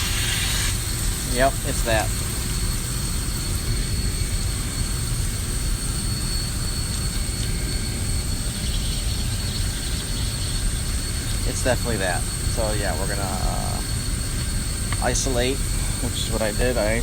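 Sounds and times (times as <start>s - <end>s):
machinery low rumble: 0.0s - 17.0s
faint steady high tone: 6.0s - 17.0s.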